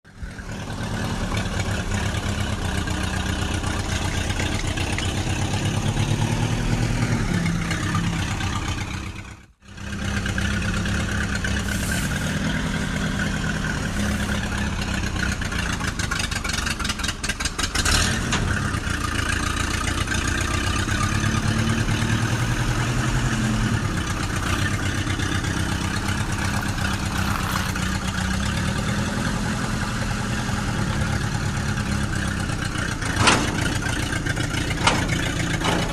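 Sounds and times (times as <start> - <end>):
tractor engine running: 0.1 - 35.9
short rattle: 18.4 - 28.3, 32.6 - 35.9.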